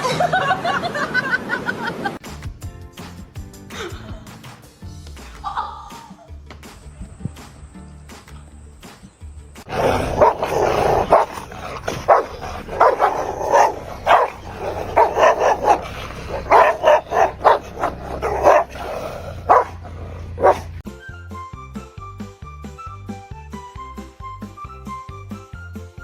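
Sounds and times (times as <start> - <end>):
dog barking: 9.7 - 20.8.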